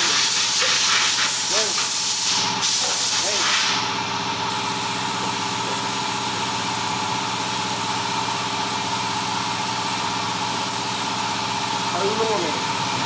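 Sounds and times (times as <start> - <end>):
engine idling: 3.8 - 13.0.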